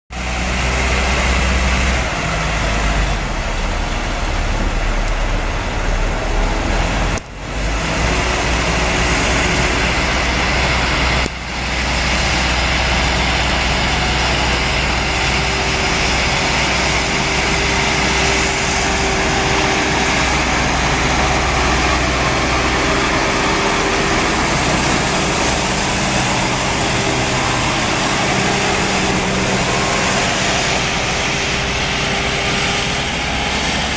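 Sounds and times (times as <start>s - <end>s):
road noise: 0.1s - 33.9s
truck engine: 0.1s - 33.9s.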